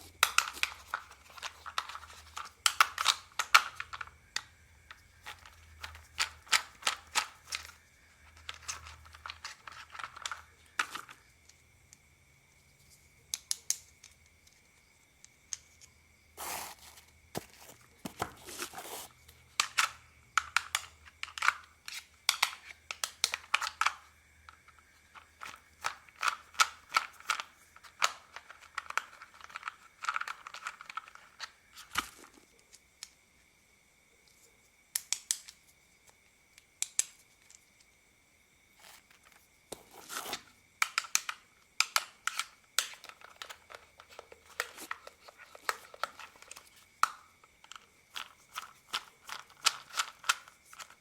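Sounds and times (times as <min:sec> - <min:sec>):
plastic clicks and scrapes: 0:38.8 - 0:51.0.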